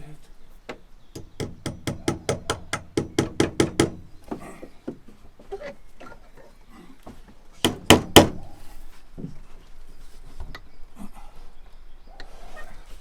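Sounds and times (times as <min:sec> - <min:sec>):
hammer driving nail into wood: 0:01.2 - 0:04.2, 0:07.6 - 0:08.4.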